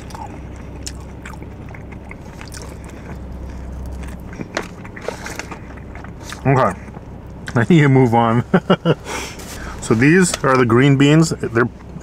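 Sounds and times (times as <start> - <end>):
person chewing and crunching: 0.0 - 7.7
steady low hum: 0.0 - 12.0.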